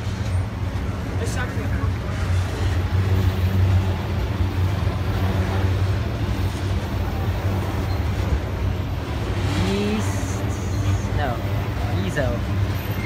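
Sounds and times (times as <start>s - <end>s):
freight cars rumbling on rails: 0.0s - 13.0s.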